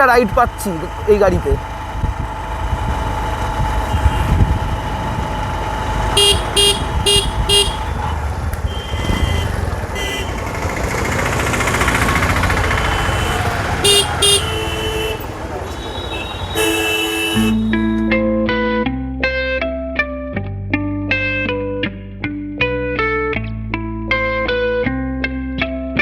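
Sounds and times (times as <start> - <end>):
motorcycle engine and wind rumble: 0.0 - 17.7
vehicle horn tooting: 3.9 - 4.7, 6.1 - 11.1, 11.8 - 18.0.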